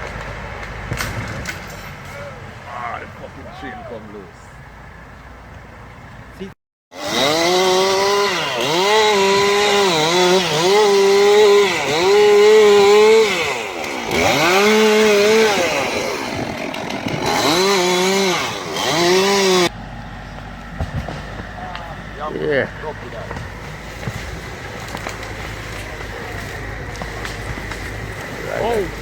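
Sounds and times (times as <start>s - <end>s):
chainsaw cutting wood: 6.9s - 19.7s, 23.0s - 29.0s.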